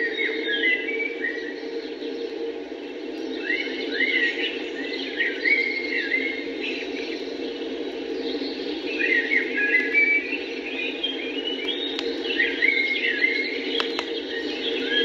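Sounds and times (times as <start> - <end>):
wild birds singing: 0.0 - 15.0
sharp clicks: 11.6 - 12.2, 13.7 - 14.2.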